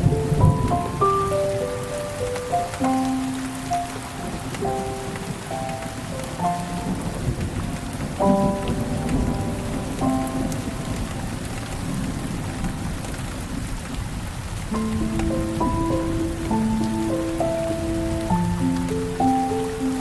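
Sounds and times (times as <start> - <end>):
low rumble of thunder: 0.0 - 2.2, 3.8 - 20.0
soft music of held chords: 0.0 - 11.4, 14.7 - 20.0
steady rain: 0.0 - 20.0.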